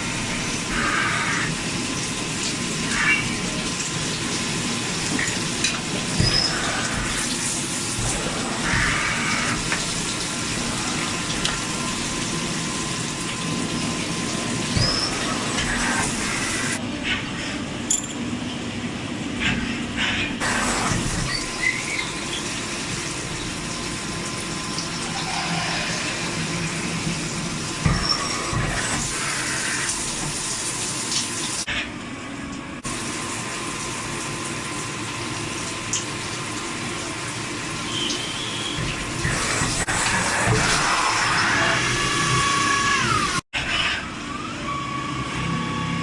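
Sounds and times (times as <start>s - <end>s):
lathe machining: 0.0s - 2.1s, 2.7s - 16.8s, 37.5s - 43.4s
coolant splashing: 1.5s - 16.8s.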